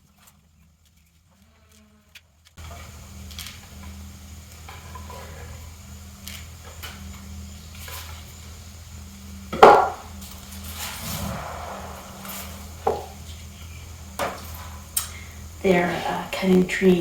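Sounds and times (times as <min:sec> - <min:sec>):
steady low hum: 0:08.4 - 0:16.9.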